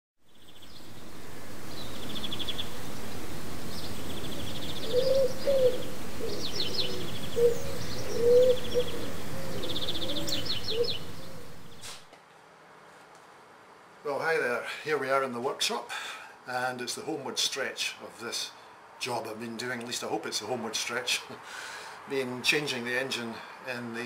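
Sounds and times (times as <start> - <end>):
lower warbling bird calls: 0.2 - 11.9
birds singing trills: 0.2 - 12.0
steady rushing noise: 0.6 - 12.0.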